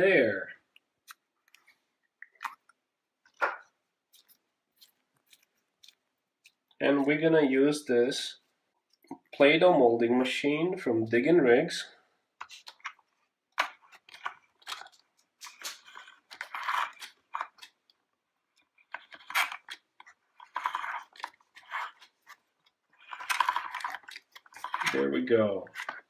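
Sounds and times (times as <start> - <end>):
play dough squelching: 0.6 - 6.8, 12.4 - 26.0.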